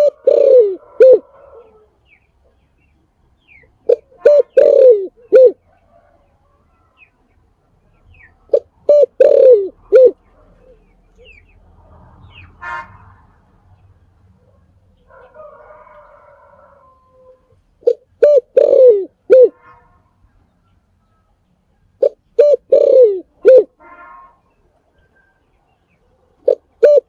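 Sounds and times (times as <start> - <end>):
dove cooing: 0.0 - 1.9, 3.8 - 5.8, 8.5 - 10.9, 16.2 - 19.6, 22.0 - 23.8, 26.4 - 27.0.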